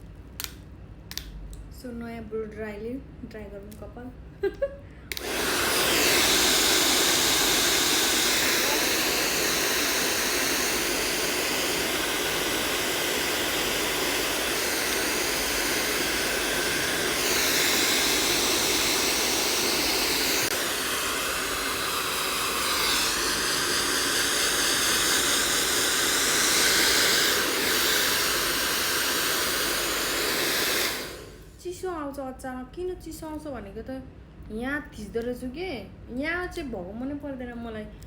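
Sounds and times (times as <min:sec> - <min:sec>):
hair dryer blowing: 0:05.1 - 0:31.6.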